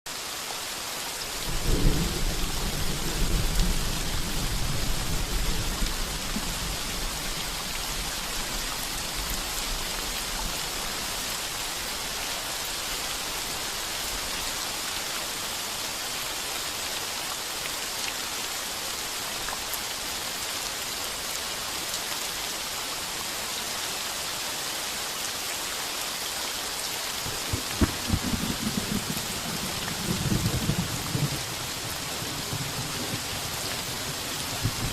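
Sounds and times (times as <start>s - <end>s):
heavy rain on a tin roof: 0.1s - 34.9s
thunder rumbling: 1.5s - 7.6s, 27.2s - 31.5s, 34.6s - 34.9s.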